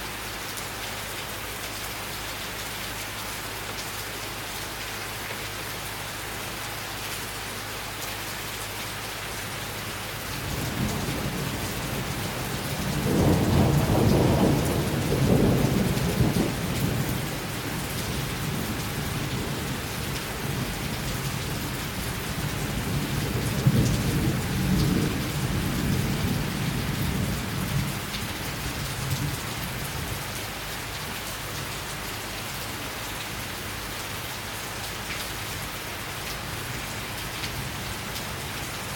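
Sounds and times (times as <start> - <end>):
steady rain: 0.0 - 38.9
rolling thunder rumble: 10.4 - 30.0.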